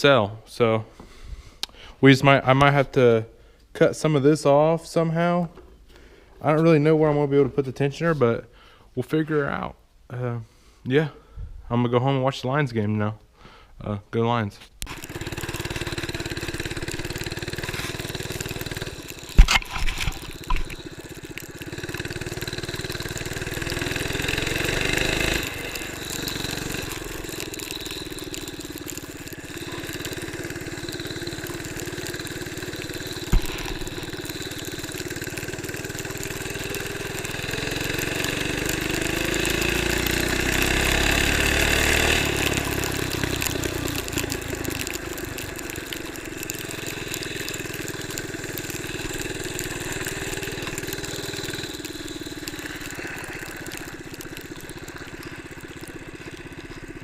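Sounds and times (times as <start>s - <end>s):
vehicle engine revving: 20.1s - 57.0s.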